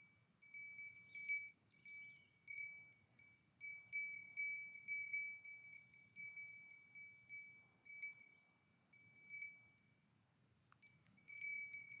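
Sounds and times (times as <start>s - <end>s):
cowbell clanking: 11.0s - 12.0s.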